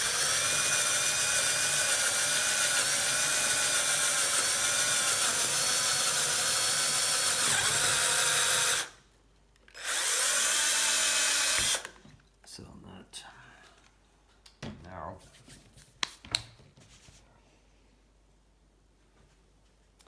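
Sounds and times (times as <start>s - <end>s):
electric drill whining: 0.0s - 9.0s, 9.7s - 12.0s.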